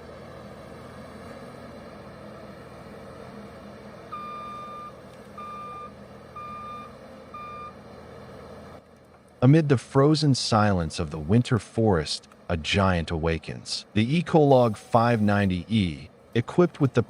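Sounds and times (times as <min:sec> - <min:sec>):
diesel engine humming: 0:00.0 - 0:17.0
reversing alarm beeps: 0:04.1 - 0:07.8.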